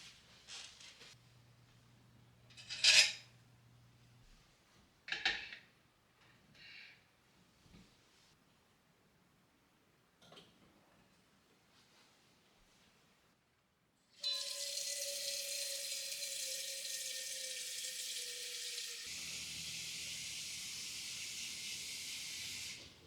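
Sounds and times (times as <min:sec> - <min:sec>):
water running from a tap: 0:14.2 - 0:23.0.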